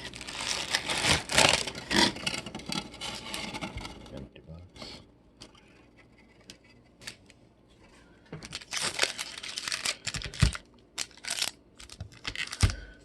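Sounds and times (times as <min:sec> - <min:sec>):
plastic packs crinkling: 0:00.0 - 0:03.9, 0:08.4 - 0:13.0.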